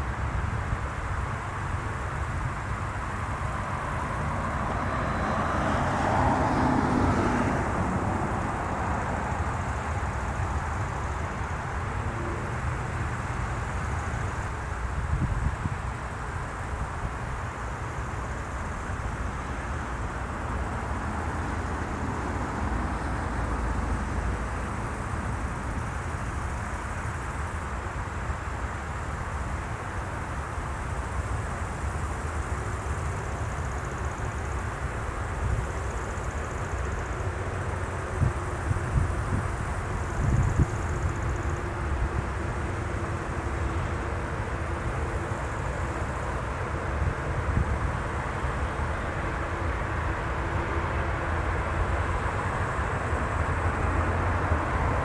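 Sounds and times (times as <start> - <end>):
jet airliner engines rumbling: 0.0 - 28.0, 29.5 - 55.0
jet engine rumble: 1.7 - 12.7.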